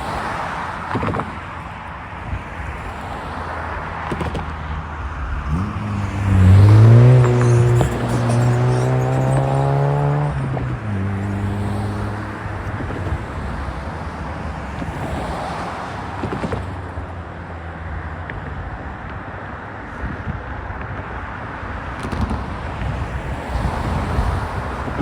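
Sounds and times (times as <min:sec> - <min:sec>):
tyre and road noise: 0:00.0 - 0:25.0
vehicle engine accelerating: 0:03.8 - 0:13.2.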